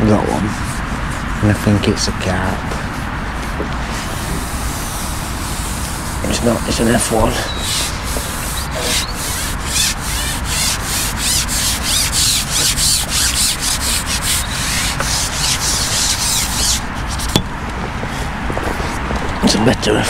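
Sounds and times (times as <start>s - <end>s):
rhythmic scraping strokes: 2.8s - 19.2s.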